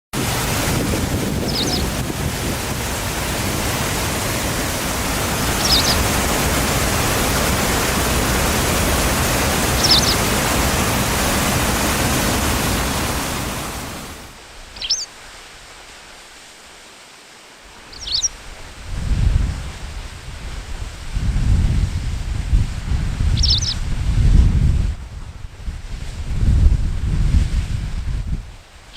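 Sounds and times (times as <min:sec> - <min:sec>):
steady rushing noise: 0:00.2 - 0:15.8
bird chirping: 0:01.4 - 0:02.0, 0:05.6 - 0:06.0, 0:09.8 - 0:10.2, 0:14.8 - 0:15.1, 0:17.9 - 0:18.3, 0:23.4 - 0:23.8.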